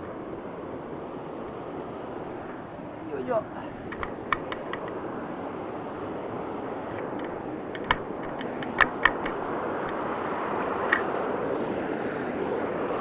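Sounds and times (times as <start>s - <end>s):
mountain stream rushing: 0.0s - 13.0s
sharp clicks: 3.9s - 5.0s, 7.0s - 9.4s.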